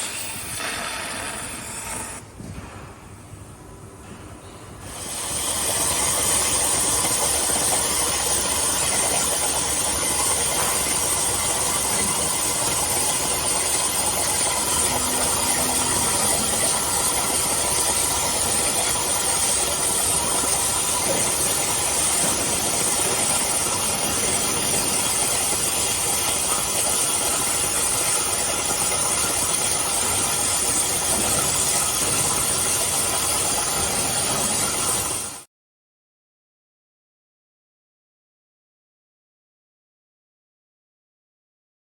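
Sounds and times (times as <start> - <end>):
cutting torch hissing: 0.0 - 2.2, 4.9 - 35.3.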